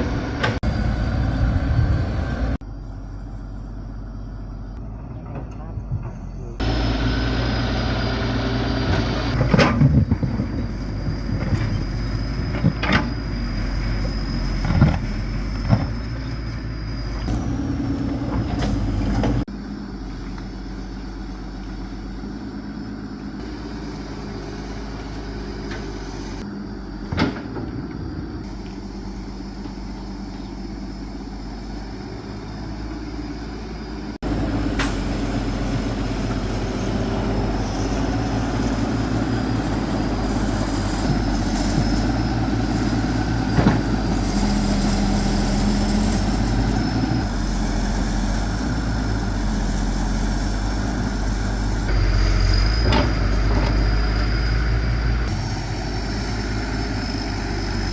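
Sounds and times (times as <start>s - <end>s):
heavy machine engine running: 0.0s - 57.9s.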